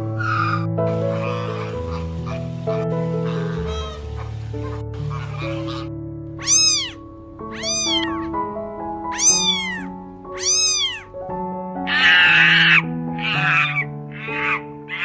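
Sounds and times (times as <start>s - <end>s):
harsh raspy animal calls: 0.0s - 8.4s, 9.1s - 11.1s, 11.8s - 15.0s
background music: 0.0s - 15.0s
cat meowing: 5.2s - 8.4s, 9.1s - 11.2s, 11.8s - 15.0s.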